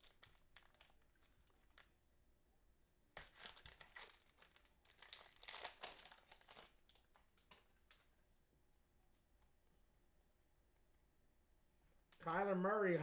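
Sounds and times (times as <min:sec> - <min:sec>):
plastic wrapper crinkling: 0:00.0 - 0:02.0, 0:03.2 - 0:08.2.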